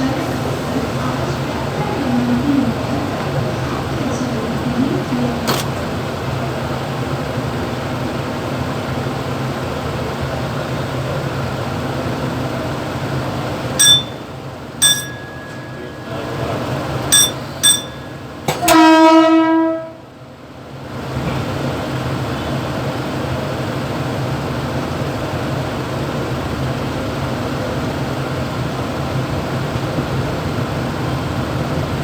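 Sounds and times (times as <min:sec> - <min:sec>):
electric train rumbling: 0:00.0 - 0:32.0
short sharp train toots: 0:17.1 - 0:20.0
train horn blast: 0:18.6 - 0:20.1.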